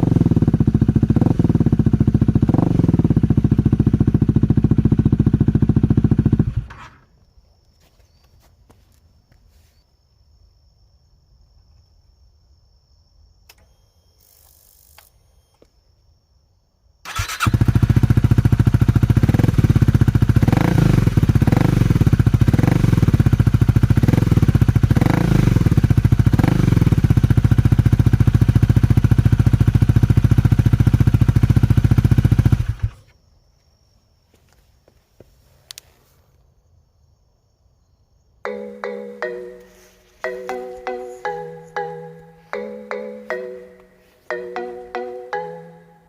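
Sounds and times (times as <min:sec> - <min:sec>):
motorcycle engine revving: 0:00.0 - 0:07.0, 0:17.1 - 0:33.0
faint clicks: 0:35.7 - 0:35.9.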